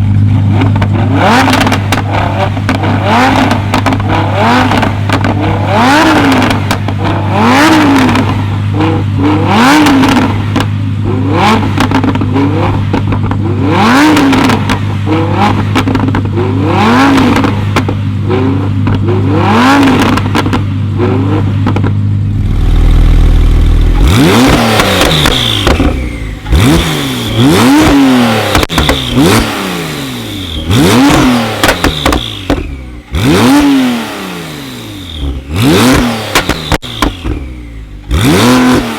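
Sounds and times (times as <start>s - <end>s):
exhaust crackles and pops: 0.0s - 8.7s, 9.7s - 10.8s, 11.5s - 16.4s, 17.1s - 19.2s, 19.8s - 20.7s, 21.4s - 29.6s, 30.5s - 33.6s, 35.2s - 38.9s
car engines revving: 0.0s - 38.9s
engine idling: 22.0s - 29.3s.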